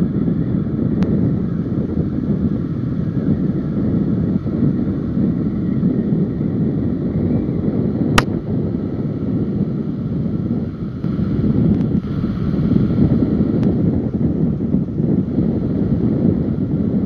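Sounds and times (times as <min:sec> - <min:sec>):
wind rushing over microphone: 0:00.0 - 0:17.0
sharp click: 0:08.2 - 0:08.4.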